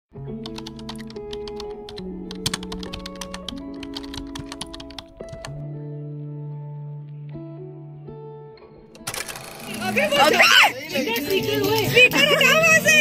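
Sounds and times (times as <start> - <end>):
background music with held chords: 0.1 - 13.0
computer keyboard typing: 0.4 - 5.6, 9.0 - 10.4.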